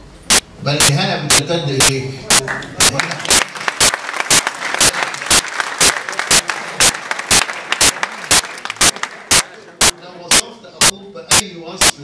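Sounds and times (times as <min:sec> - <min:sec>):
audience clapping in unison: 0:02.3 - 0:10.0
crowd hubbub: 0:03.8 - 0:10.4.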